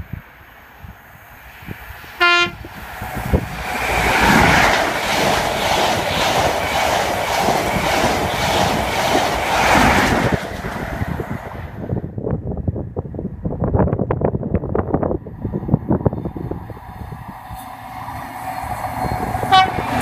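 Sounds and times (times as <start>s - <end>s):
train passing at speed: 0.0s - 20.0s
train horn blast: 2.2s - 2.7s, 19.1s - 20.0s
wheels clickety-clack over rail joints: 2.8s - 12.0s.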